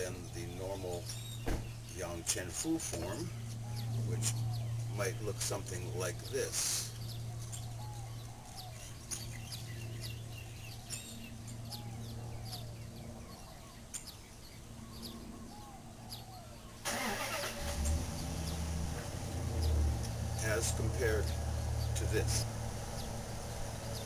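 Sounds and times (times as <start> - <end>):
steady low hum: 0.0 - 16.9, 17.5 - 24.0
small birds chirping: 0.0 - 24.0
car passing: 16.9 - 24.0.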